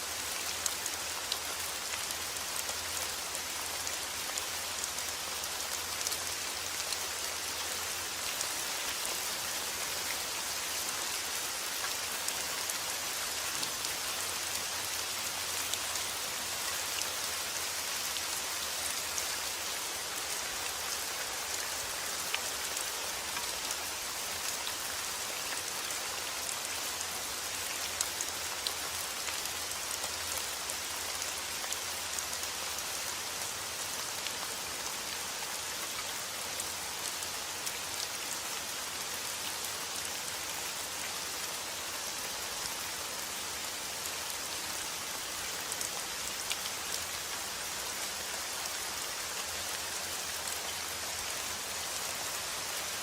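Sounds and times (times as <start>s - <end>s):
raindrops pattering on a surface: 20.2s - 32.6s.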